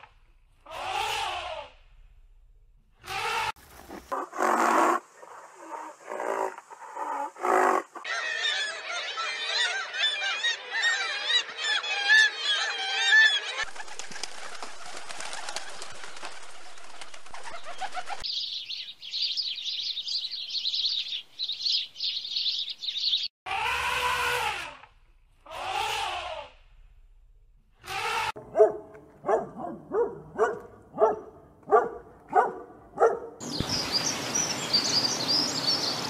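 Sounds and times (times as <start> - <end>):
birds chirping: 15.7 - 23.4, 28.3 - 36.0.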